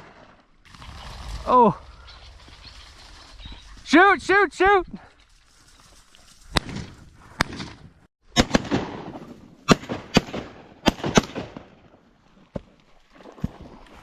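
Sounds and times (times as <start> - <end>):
shotgun shots echoing: 6.6 - 11.9.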